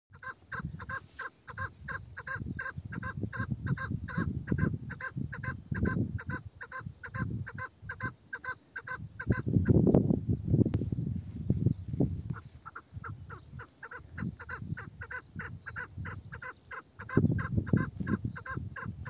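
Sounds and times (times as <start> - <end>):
partridge calling short notes: 12.3 - 18.9.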